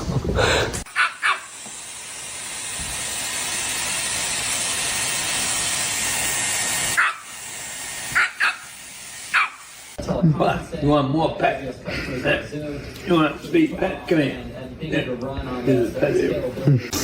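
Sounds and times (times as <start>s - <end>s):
steady hiss: 0.6s - 10.0s
dog yipping: 0.9s - 1.5s, 7.0s - 7.3s, 8.2s - 8.7s, 9.3s - 9.6s.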